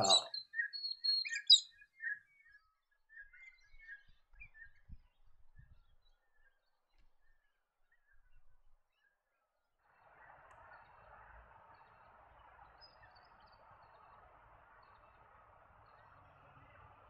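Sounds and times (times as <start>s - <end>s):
galahs calling: 0.0s - 0.4s.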